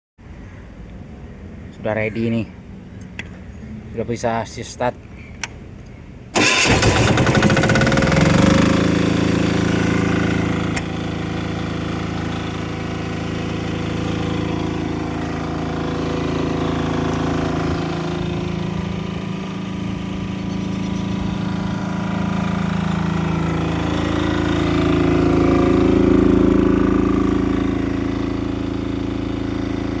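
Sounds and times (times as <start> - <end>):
car engine starting and idling: 6.3 - 30.0.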